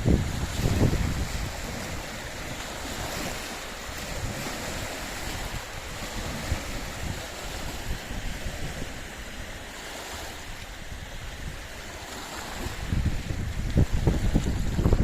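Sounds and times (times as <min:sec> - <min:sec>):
small waves washing on shore: 0:00.0 - 0:15.0
steady wind: 0:00.0 - 0:15.0
wind gusts on microphone: 0:00.0 - 0:15.0.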